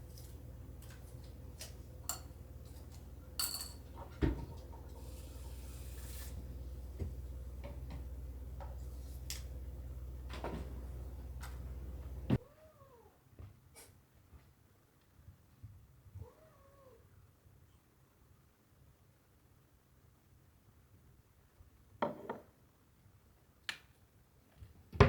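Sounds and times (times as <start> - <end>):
steady low hum: 0.0 - 12.4
dishes clicking and knocking: 2.1 - 2.4, 3.4 - 4.9
cat meowing: 16.2 - 17.0.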